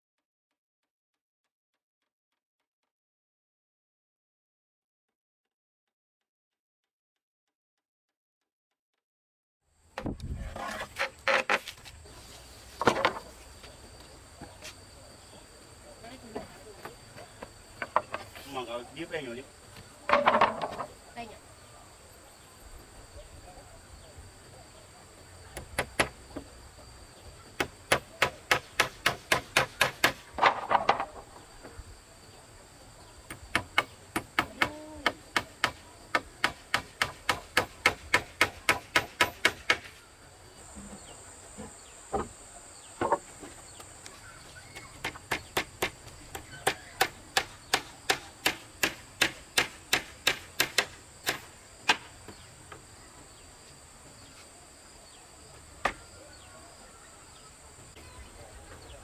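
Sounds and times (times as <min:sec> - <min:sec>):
insects buzzing: 0:09.8 - 0:59.0
hand tool strikes: 0:33.3 - 0:39.9, 0:44.8 - 0:52.1.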